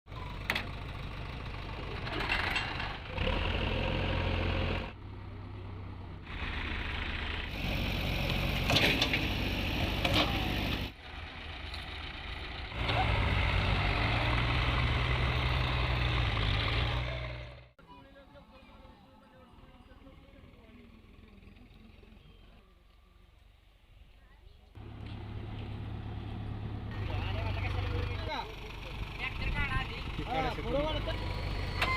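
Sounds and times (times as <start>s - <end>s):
diesel tractor engine running: 0.1s - 17.8s, 24.8s - 31.9s.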